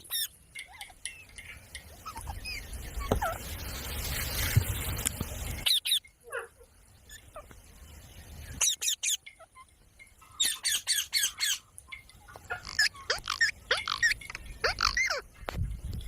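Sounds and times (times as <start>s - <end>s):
parrot squawking: 5.6s - 6.1s, 8.6s - 9.7s, 10.4s - 11.7s, 12.4s - 15.3s.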